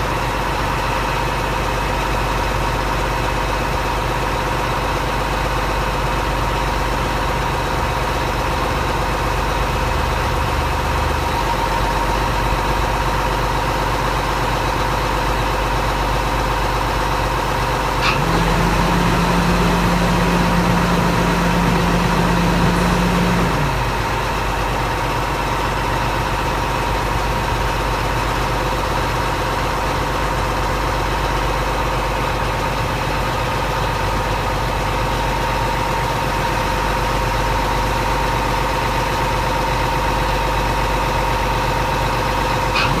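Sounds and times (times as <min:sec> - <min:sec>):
truck engine idling: 0:00.0 - 0:43.0
loud steady low hum: 0:17.7 - 0:29.0, 0:42.2 - 0:43.0.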